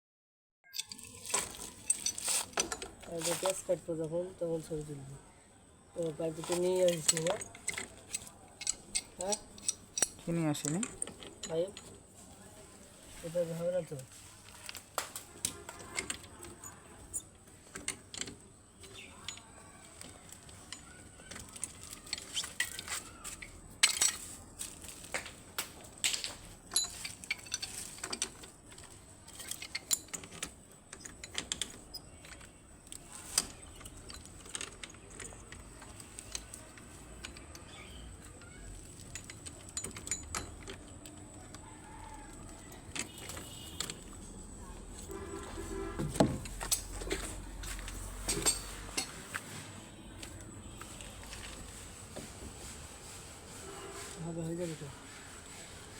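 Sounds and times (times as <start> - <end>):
clinks of plumbing tools: 0.7 - 3.6, 6.4 - 12.1, 14.7 - 41.0, 45.0 - 49.6.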